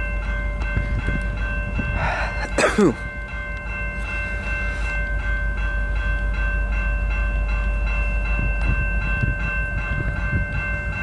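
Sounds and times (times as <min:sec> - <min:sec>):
freight train rumbling: 0:00.0 - 0:11.0
high-pitched ringing tones: 0:00.0 - 0:11.0.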